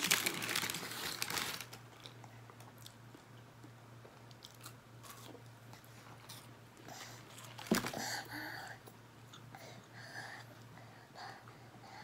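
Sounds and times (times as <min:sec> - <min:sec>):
chewing crunchy food: 0:01.9 - 0:06.6.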